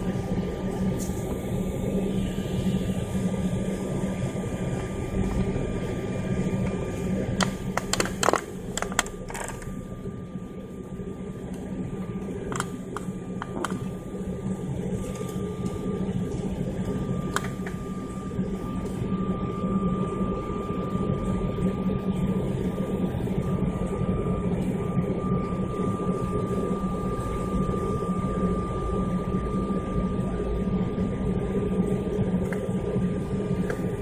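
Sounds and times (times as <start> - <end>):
airliner cabin engine drone: 0.0 - 34.0
sharp clicks and knocks: 7.4 - 9.8, 12.5 - 14.0, 17.3 - 17.8.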